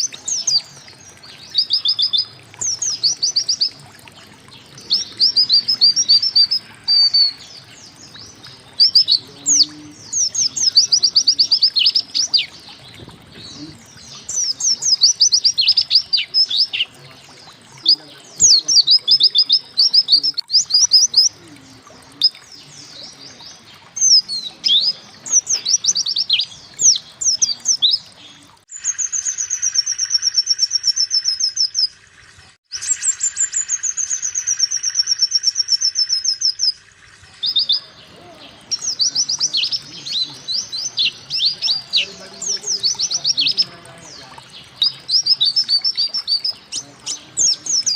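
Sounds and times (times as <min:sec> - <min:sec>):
bird chirping high: 0:00.0 - 0:21.4, 0:22.0 - 0:32.0, 0:37.4 - 0:47.9.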